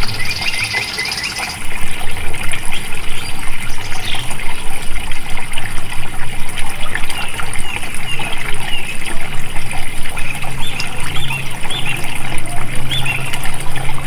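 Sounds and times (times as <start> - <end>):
bird chirps: 0.0 - 1.6
water trickling and gurgling: 0.0 - 14.0.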